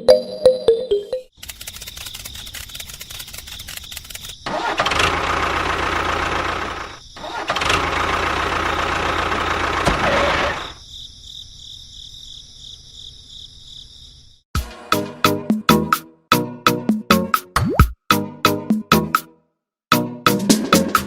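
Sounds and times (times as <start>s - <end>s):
engine-like motor: 1.4s - 10.8s.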